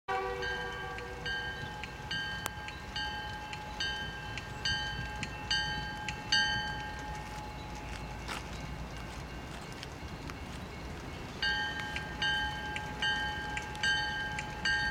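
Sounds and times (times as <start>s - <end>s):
locomotive horn: 0.1s - 1.6s
locomotive bell ringing: 0.1s - 14.9s
low locomotive rumble: 0.1s - 14.9s.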